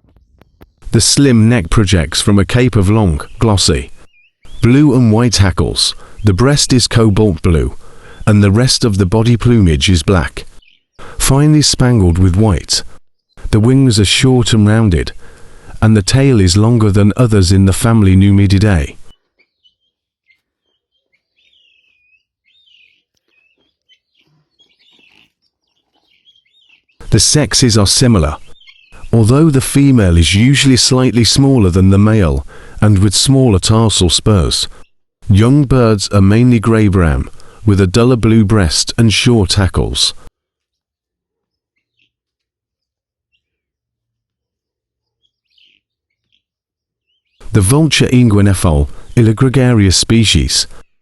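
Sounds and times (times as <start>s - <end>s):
faint bird chirps: 0.0s - 1.0s, 3.0s - 4.8s, 10.4s - 11.1s, 19.0s - 27.1s, 28.3s - 29.2s, 40.4s - 47.5s
faint bird chirps and whistles: 19.0s - 27.0s, 28.4s - 29.1s.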